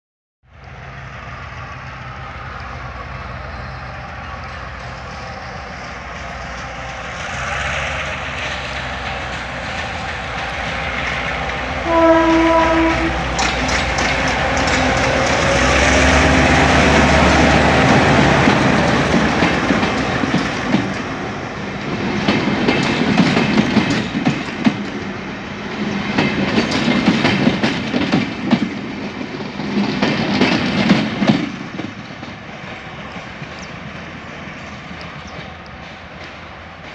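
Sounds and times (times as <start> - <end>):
locomotive engine under load: 0.7 - 36.9
train horn blast: 11.8 - 13.4
wheels clattering over rail joints: 13.2 - 36.9.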